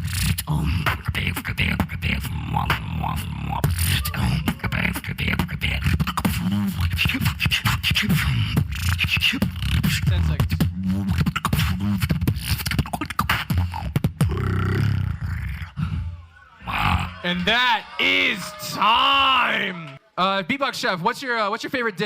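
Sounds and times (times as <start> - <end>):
person beatboxing: 0.0 - 17.1.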